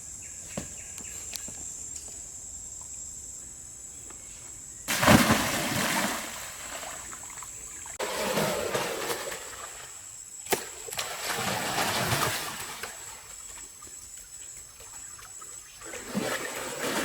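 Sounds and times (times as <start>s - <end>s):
water splashing and sloshing: 4.9s - 17.0s.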